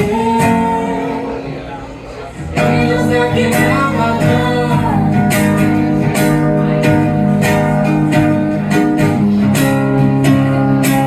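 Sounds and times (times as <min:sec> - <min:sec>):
person singing: 0:00.0 - 0:01.4, 0:02.5 - 0:06.8
acoustic guitar strumming: 0:00.0 - 0:01.7, 0:02.3 - 0:11.0.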